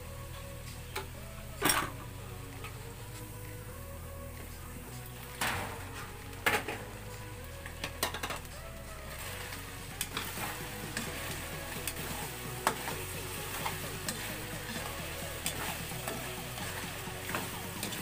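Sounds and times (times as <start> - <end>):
chicken sizzling in a wok: 2.8 - 18.0
metal spatula scraping pan: 9.5 - 18.0.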